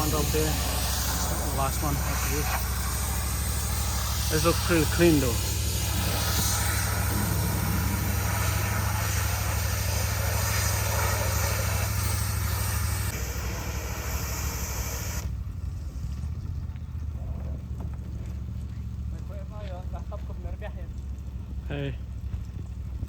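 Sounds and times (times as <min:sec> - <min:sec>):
water spray hissing: 0:00.0 - 0:15.3
pressure washer engine rumbling: 0:00.0 - 0:23.0.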